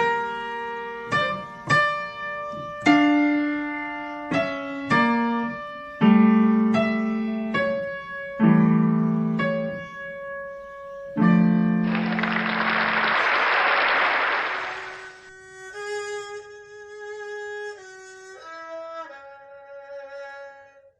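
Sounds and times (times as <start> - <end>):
slow piano melody in chords: 0.0 - 13.0.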